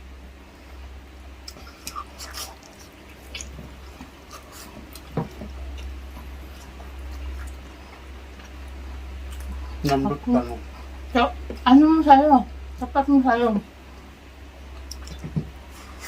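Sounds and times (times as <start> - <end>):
steady low hum: 0.0 - 16.0
chewing with wet mouth clicks: 1.4 - 10.0, 14.7 - 15.3.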